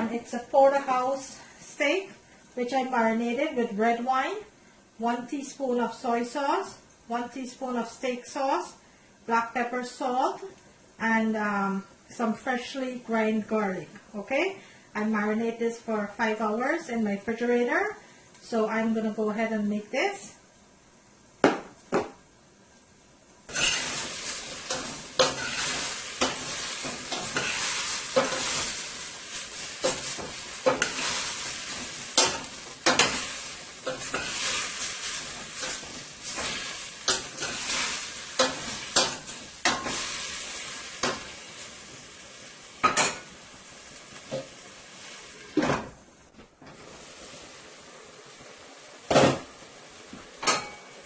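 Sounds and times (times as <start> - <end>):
utensil scraping a pan: 23.5 - 40.2
steak sizzling in a pan: 23.5 - 45.6, 46.8 - 51.0.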